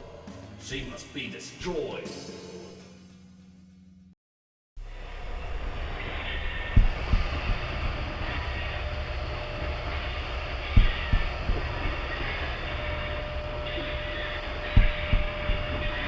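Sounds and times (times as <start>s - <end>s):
short low thumps of wheels: 14.7s - 16.0s.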